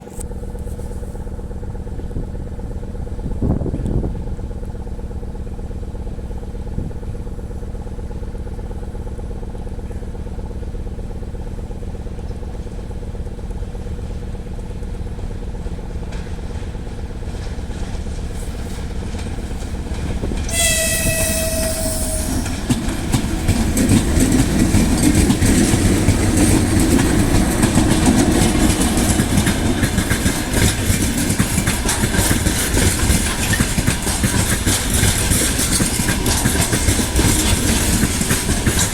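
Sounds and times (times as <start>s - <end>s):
electric locomotive humming: 0.0s - 38.9s
train wagons rumbling on rails: 0.0s - 38.9s
locomotive horn blast: 18.4s - 28.6s.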